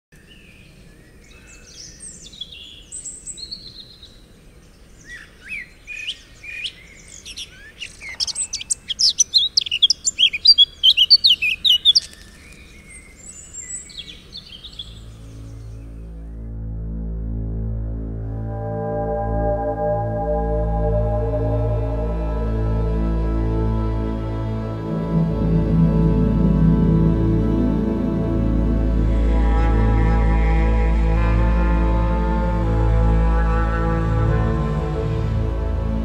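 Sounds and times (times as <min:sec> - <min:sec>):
birds chirping and trilling: 0:00.2 - 0:16.3
low ambient music: 0:14.7 - 0:36.0.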